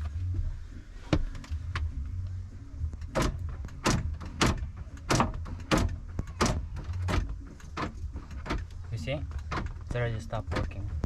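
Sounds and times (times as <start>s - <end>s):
low hum: 0.0s - 9.9s
car door locks clunking: 2.9s - 11.0s.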